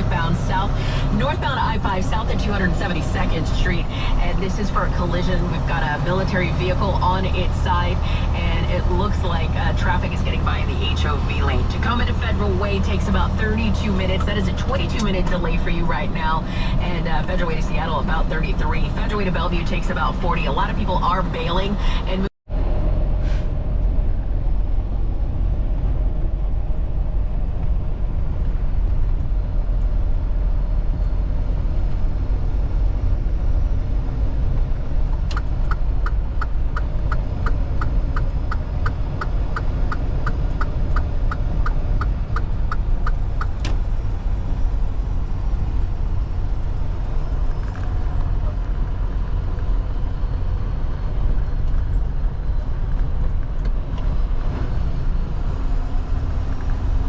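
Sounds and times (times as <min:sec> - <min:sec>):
road and engine rumble: 0:00.0 - 0:57.0
turn signal ticking: 0:00.1 - 0:22.2, 0:34.7 - 0:44.4.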